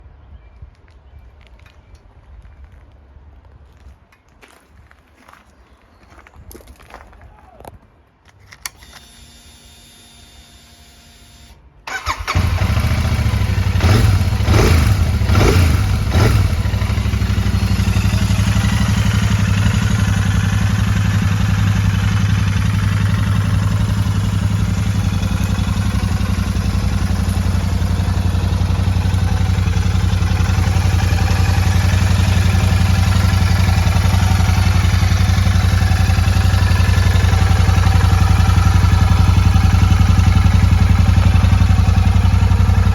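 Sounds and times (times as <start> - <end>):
motorcycle engine revving and idling: 11.9 - 42.9.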